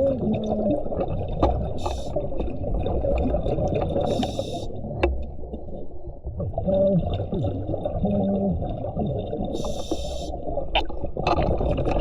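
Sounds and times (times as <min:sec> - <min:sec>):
gurgle of exhaled bubbles: 0:00.0 - 0:12.0
regulator hissing inhalations: 0:04.1 - 0:04.7, 0:09.6 - 0:10.3.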